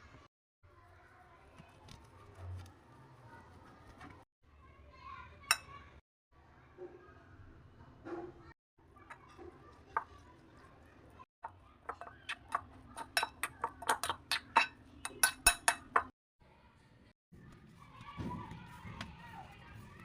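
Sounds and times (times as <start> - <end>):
kitchen utensils clinking: 11.8 - 16.1.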